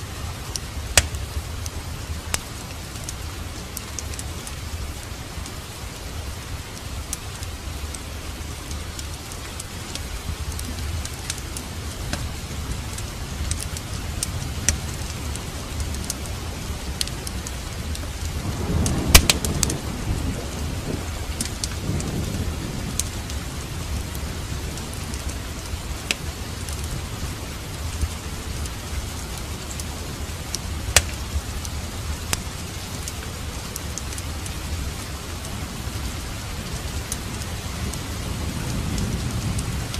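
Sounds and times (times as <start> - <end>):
crackling fireplace fire: 0.0 - 39.9
steady rain falling: 0.0 - 39.9
thunder rolling and cracking: 17.4 - 27.4, 37.5 - 39.9.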